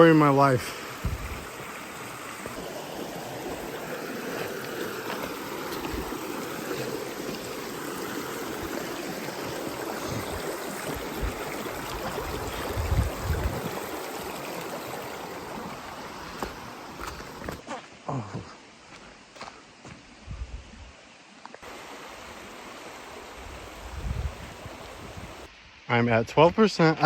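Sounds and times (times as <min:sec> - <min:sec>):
creek water over rocks: 0:00.0 - 0:20.2, 0:21.0 - 0:27.0
dull low thumps: 0:01.0 - 0:01.5.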